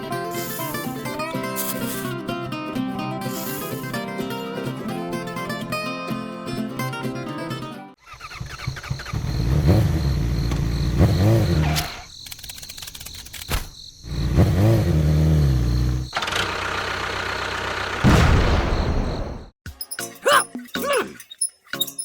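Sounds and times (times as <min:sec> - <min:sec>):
motor revving: 0:08.0 - 0:12.0, 0:14.1 - 0:18.0.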